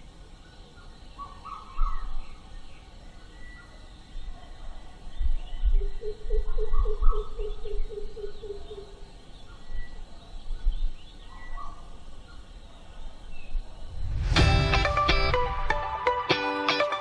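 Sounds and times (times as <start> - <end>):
low irregular rumbling: 13.6 - 15.7.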